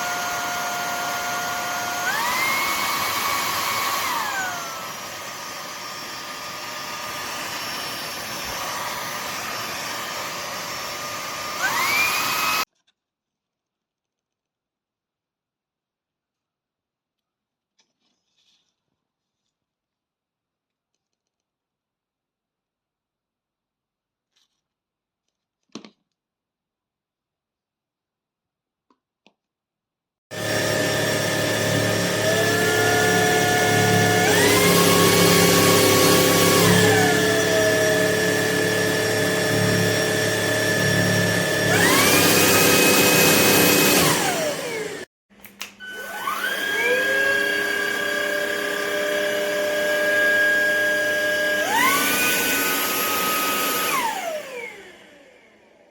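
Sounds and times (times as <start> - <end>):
vacuum cleaner motor whine: 0.0 - 12.7, 30.3 - 45.1, 45.8 - 55.9.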